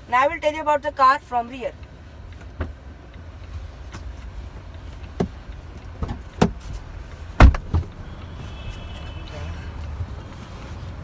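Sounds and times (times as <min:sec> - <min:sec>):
low steady rumble: 0:00.0 - 0:11.0
knocks and thumps in car: 0:02.4 - 0:02.8, 0:04.9 - 0:10.2.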